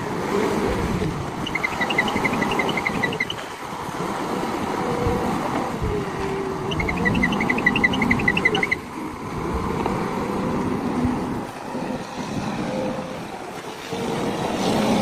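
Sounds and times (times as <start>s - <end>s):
short high chirps: 1.5s - 3.4s.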